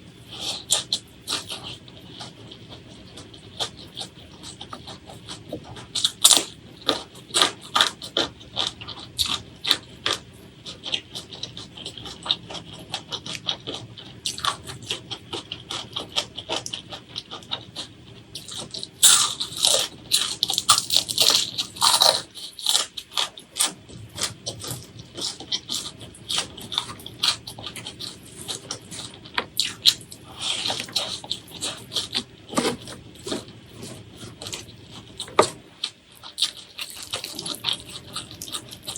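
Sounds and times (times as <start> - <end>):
chewing and crunching food: 0.0 - 38.9.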